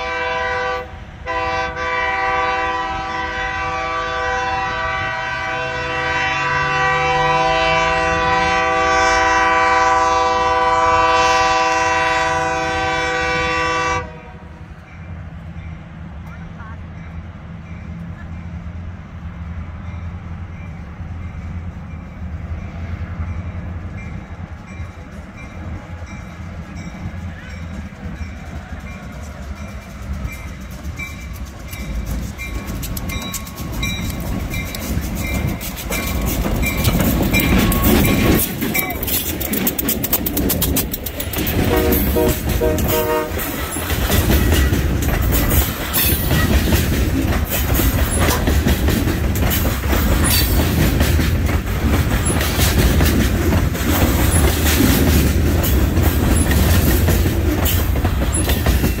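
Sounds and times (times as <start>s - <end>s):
locomotive horn: 0.0s - 14.6s, 41.5s - 44.5s
freight cars rumbling: 0.0s - 59.0s
crossing bell dinging: 19.7s - 46.8s
wheels clacking over rail joints: 23.4s - 59.0s.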